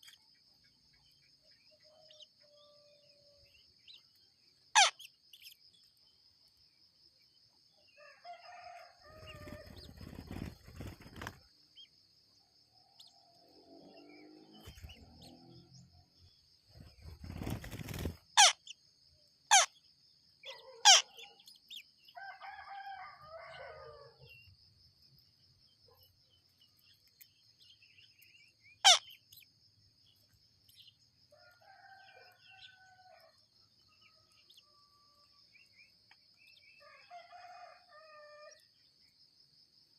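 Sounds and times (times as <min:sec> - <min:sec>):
birds calling: 0:04.8 - 0:05.1, 0:17.4 - 0:18.8, 0:28.7 - 0:29.4.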